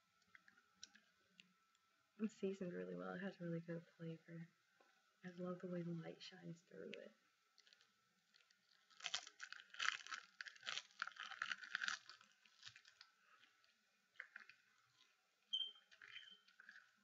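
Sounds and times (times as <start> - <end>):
crunching and chewing seaweed: 7.5 - 17.0
squeak-like mouth sound: 15.5 - 16.6.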